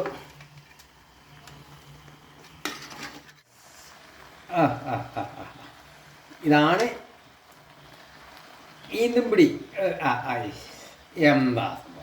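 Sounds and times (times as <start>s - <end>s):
metal spoon scraping a pot: 2.4s - 3.8s
man speaking: 8.9s - 12.0s.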